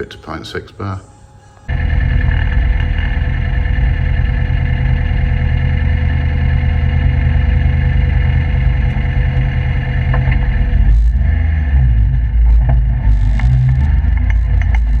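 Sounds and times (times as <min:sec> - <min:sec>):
car engine running: 0:01.7 - 0:15.0.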